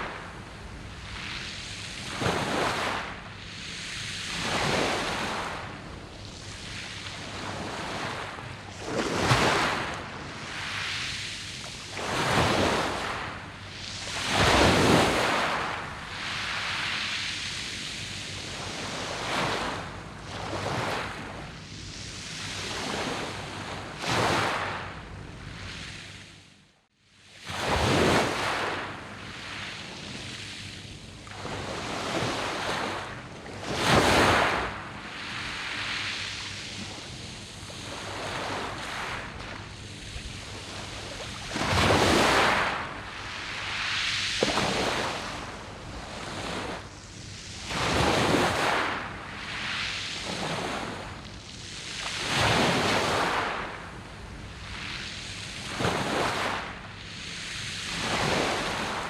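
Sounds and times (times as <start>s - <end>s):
waves washing over pebbles: 0.0s - 25.0s, 27.4s - 59.0s.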